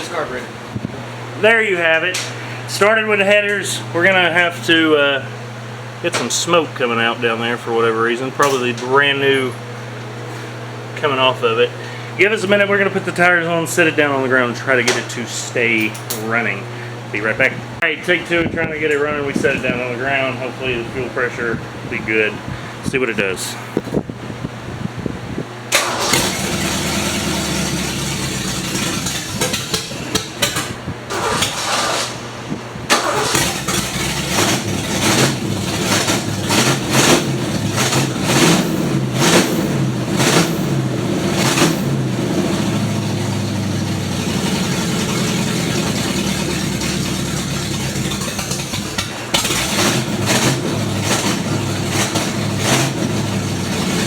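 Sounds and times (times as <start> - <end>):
car engine revving loudly: 25.7 - 54.0.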